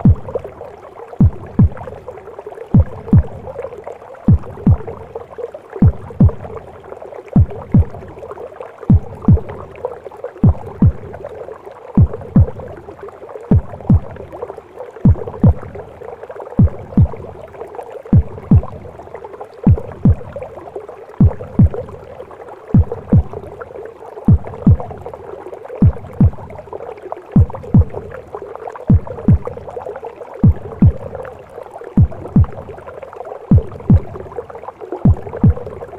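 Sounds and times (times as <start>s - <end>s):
heartbeat thumping: 0.0s - 0.5s, 1.2s - 2.1s, 2.7s - 3.6s, 4.3s - 5.2s, 5.8s - 6.7s, 7.4s - 8.2s, 8.9s - 9.8s, 10.4s - 11.4s, 12.0s - 12.8s, 13.5s - 14.3s, 15.0s - 15.9s, 16.6s - 17.4s, 18.1s - 19.0s, 19.6s - 20.5s, 21.2s - 22.1s, 22.7s - 23.6s, 24.3s - 25.2s, 25.8s - 26.6s, 27.4s - 28.2s, 28.9s - 29.7s, 30.4s - 31.3s, 32.0s - 32.8s, 33.5s - 34.4s, 35.0s - 35.9s.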